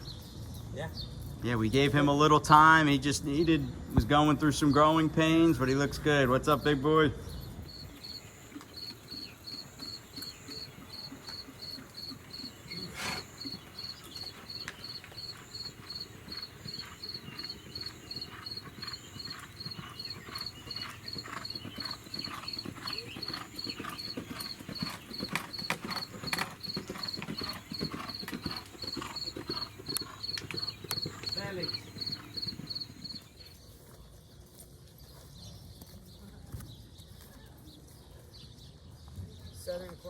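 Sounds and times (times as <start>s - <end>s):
horse hoofbeats clip-clopping: 3.9s - 40.0s
insects trilling: 7.6s - 33.4s.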